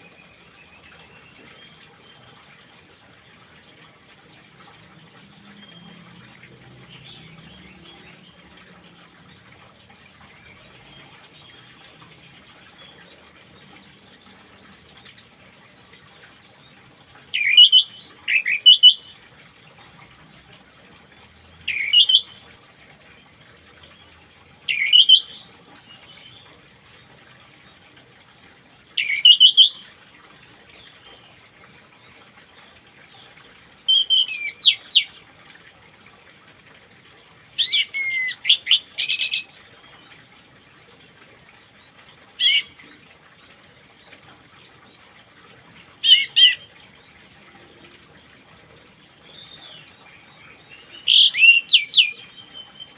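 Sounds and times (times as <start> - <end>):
songbird singing: 0.0 - 2.7, 3.3 - 19.3, 21.4 - 27.1, 28.3 - 35.2, 49.0 - 52.9
running water: 0.0 - 52.9.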